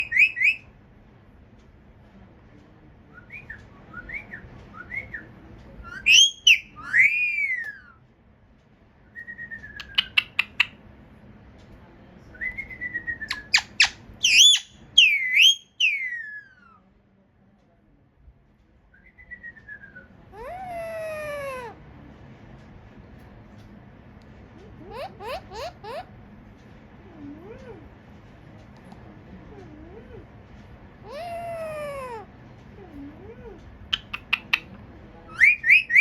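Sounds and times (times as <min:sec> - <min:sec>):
parrot whistling: 0:00.0 - 0:00.6, 0:05.9 - 0:08.0, 0:12.5 - 0:16.7, 0:35.3 - 0:36.0
parrot clicks: 0:33.8 - 0:34.8.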